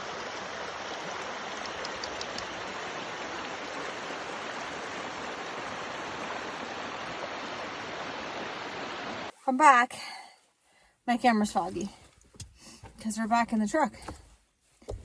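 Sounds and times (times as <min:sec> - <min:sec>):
faint ticks: 0:01.5 - 0:02.6.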